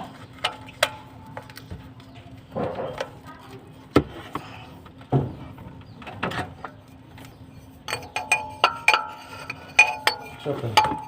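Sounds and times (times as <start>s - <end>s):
metal tools clinking: 7.8s - 11.0s.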